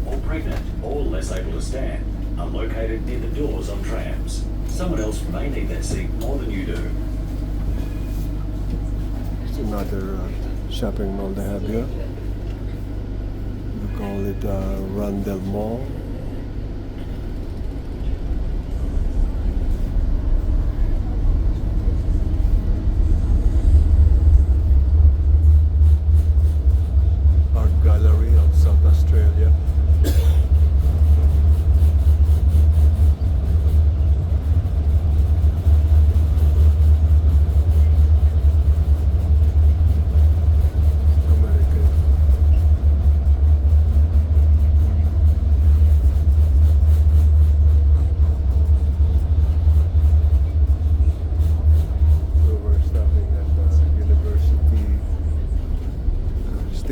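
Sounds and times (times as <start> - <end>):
tram rumbling in motion: 0.0 - 56.9.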